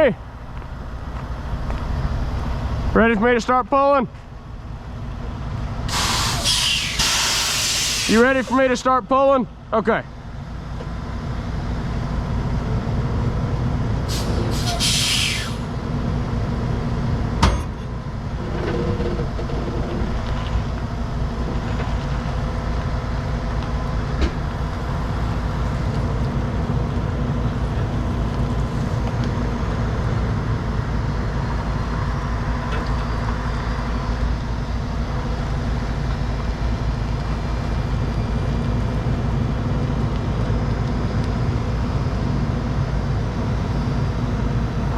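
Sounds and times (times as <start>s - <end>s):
diesel truck engine running: 0.0s - 44.9s
air hiss: 5.9s - 8.7s, 14.1s - 15.7s.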